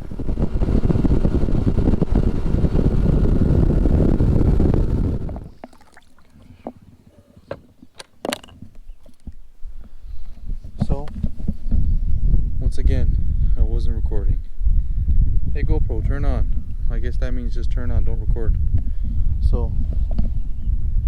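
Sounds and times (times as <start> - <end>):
wind buffeting microphone: 0.0 - 5.7, 8.6 - 21.0
boat motor running: 0.0 - 5.8.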